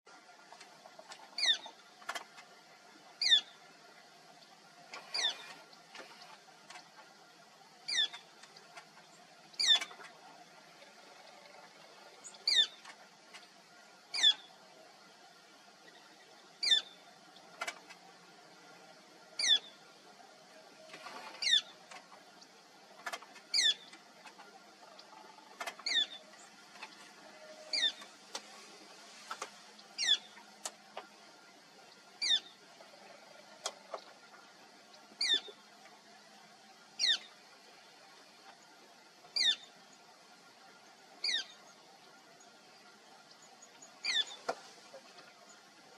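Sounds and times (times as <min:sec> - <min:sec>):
woodpecker calling: 0:00.9 - 0:01.8, 0:03.2 - 0:03.7, 0:05.0 - 0:06.3, 0:07.8 - 0:12.9, 0:14.1 - 0:14.5, 0:16.6 - 0:17.0, 0:19.4 - 0:19.8, 0:21.1 - 0:21.8, 0:23.4 - 0:28.2, 0:29.9 - 0:30.5, 0:32.2 - 0:33.8, 0:35.1 - 0:35.6, 0:37.0 - 0:37.4, 0:39.4 - 0:39.7, 0:41.2 - 0:41.6, 0:43.8 - 0:44.6.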